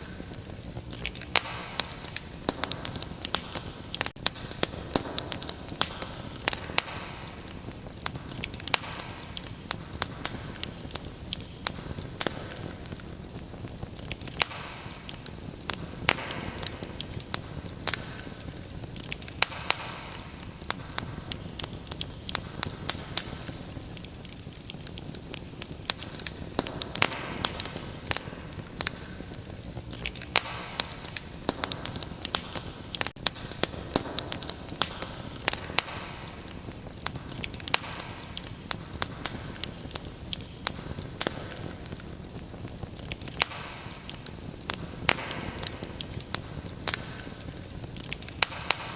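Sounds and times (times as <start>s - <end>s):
wood fire crackling and popping: 0.0s - 48.9s.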